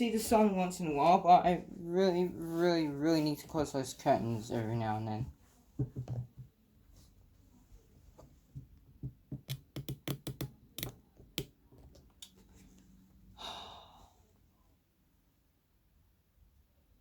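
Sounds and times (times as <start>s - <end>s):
clicks and knocks of objects handled: 8.6s - 12.4s.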